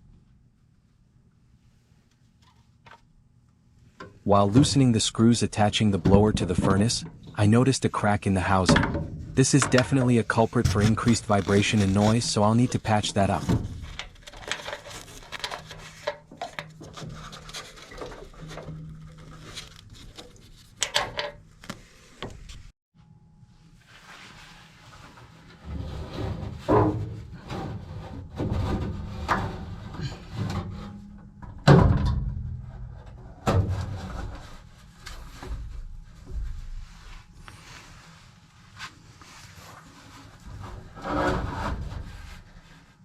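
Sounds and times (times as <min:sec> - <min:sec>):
knocks and clunks: 0:05.9 - 0:07.6, 0:08.4 - 0:14.8, 0:26.6 - 0:34.5
scraping rubs: 0:09.5 - 0:20.8.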